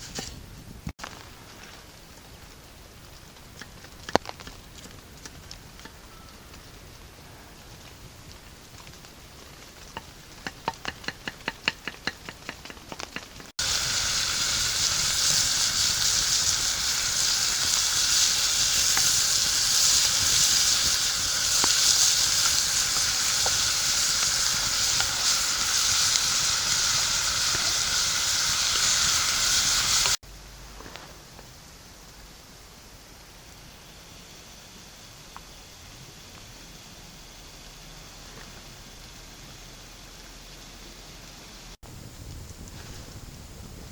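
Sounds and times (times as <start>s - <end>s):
food sizzling in hot oil: 12.9s - 30.2s.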